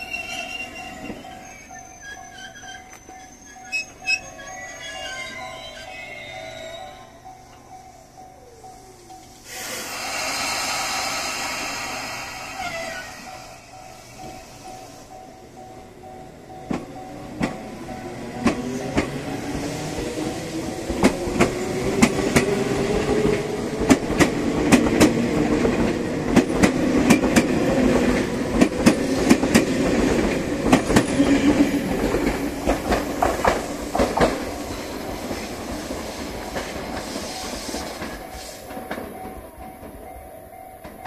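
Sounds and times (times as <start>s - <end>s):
train rumble: 0.0s - 41.0s
train wheel clicks: 16.6s - 40.2s.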